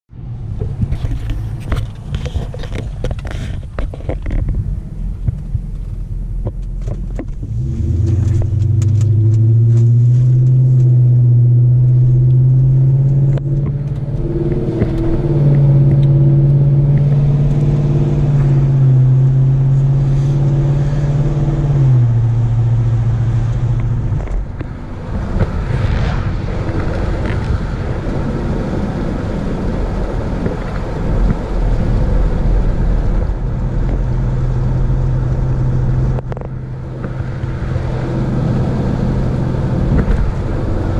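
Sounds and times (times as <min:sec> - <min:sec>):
car engine accelerating and cruising: 0:00.1 - 0:40.9.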